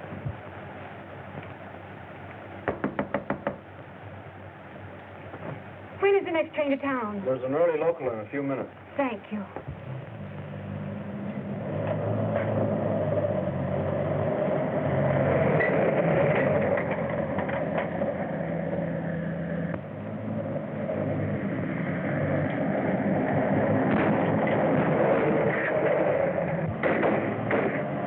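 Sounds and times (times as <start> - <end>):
train rumbling on track: 8.1 - 28.0
train clattering: 14.5 - 19.9.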